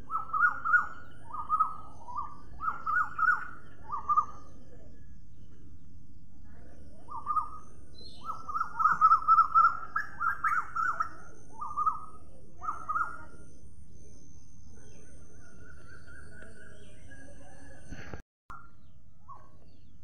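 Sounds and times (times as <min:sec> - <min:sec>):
low background noise: 0:00.0 - 0:20.0
bird chattering call: 0:00.1 - 0:04.4, 0:08.2 - 0:13.2
drawn-out bird call: 0:08.2 - 0:13.2.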